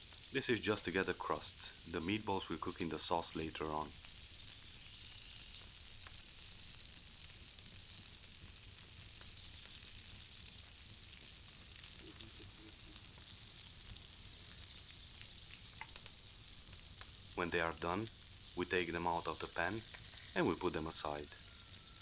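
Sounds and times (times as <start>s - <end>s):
meat sizzling in a pan: 0.0s - 22.0s
fat spitting crackles: 12.0s - 13.2s.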